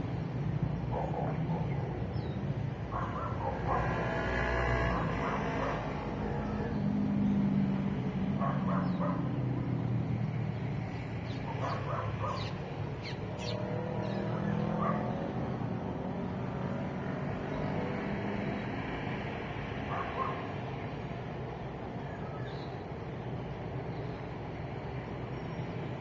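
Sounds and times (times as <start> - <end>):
road traffic hum: 0.0 - 26.0
quick high bird calls: 11.2 - 14.6
bird calls: 11.2 - 15.1.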